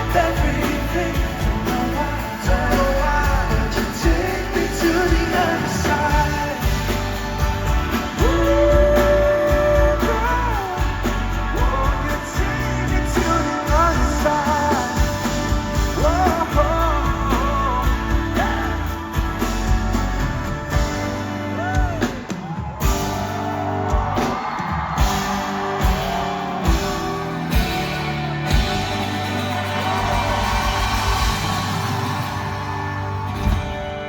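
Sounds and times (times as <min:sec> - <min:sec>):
wordless singing: 0:00.0 - 0:19.8
live pop band music: 0:00.0 - 0:34.0.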